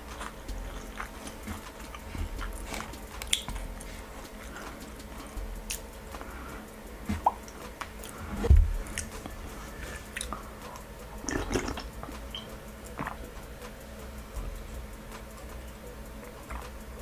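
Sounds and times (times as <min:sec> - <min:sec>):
person chewing: 0:00.0 - 0:05.9, 0:08.8 - 0:13.2
loud dull thump: 0:08.4 - 0:08.8.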